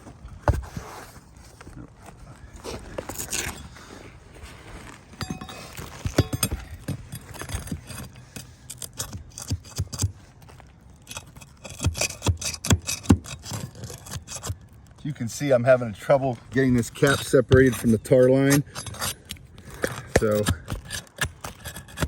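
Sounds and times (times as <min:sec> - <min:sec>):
metal tool scraping shingles: 0:03.1 - 0:03.7, 0:05.2 - 0:10.2, 0:11.0 - 0:14.8, 0:16.6 - 0:22.0.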